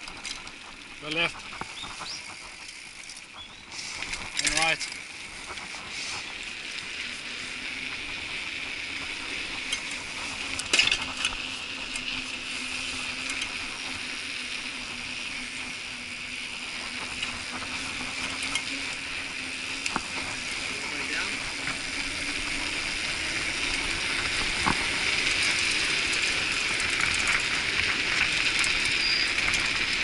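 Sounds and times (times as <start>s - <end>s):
bike tyres and drivetrain hiss: 0.0s - 30.0s.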